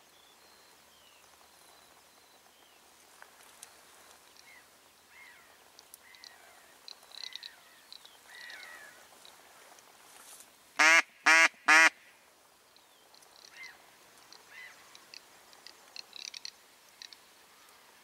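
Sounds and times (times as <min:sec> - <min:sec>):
small birds chirping: 0:00.0 - 0:09.8
duck quacking: 0:10.8 - 0:12.0.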